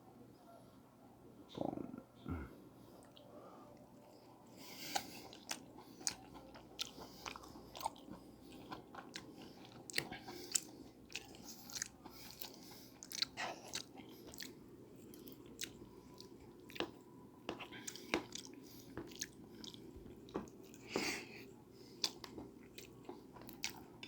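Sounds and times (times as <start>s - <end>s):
chewing mouth sounds: 4.7s - 21.0s, 21.9s - 24.0s.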